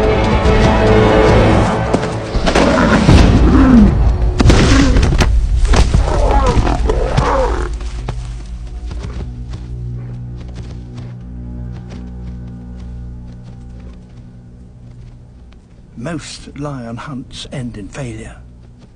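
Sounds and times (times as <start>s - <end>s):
dramatic soundtrack music: 0.0s - 18.9s
lion snarling and growling: 2.5s - 5.1s, 5.9s - 7.8s.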